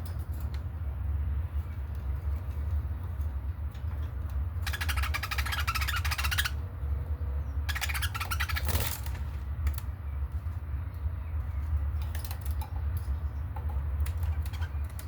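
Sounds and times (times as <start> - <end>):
budgerigars chattering: 4.6 - 6.6, 7.5 - 9.0.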